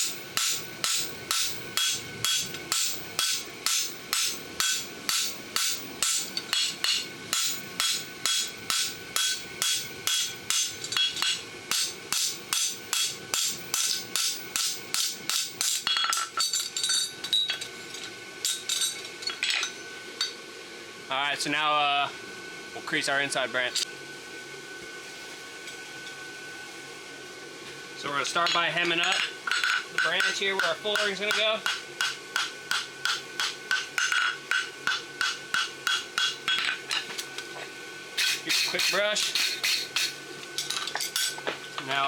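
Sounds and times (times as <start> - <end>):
hammer striking metal on anvil: 0.0 - 17.4, 28.4 - 36.8, 38.2 - 40.2.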